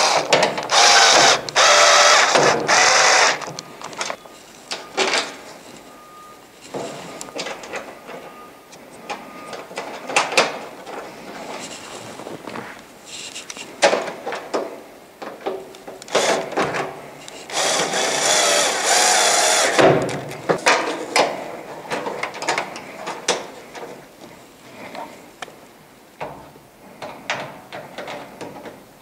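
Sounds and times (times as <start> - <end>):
cordless drill driving a screw: 0.0 - 3.5, 17.5 - 19.8
clicks and knocks of parts handled: 0.2 - 5.9.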